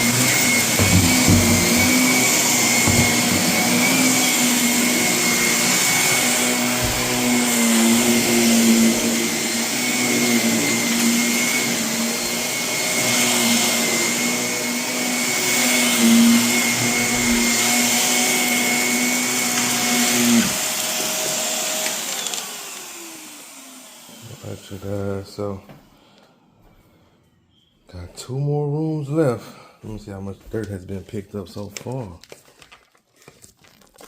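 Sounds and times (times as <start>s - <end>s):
vacuum cleaner on carpet: 0.0s - 25.6s.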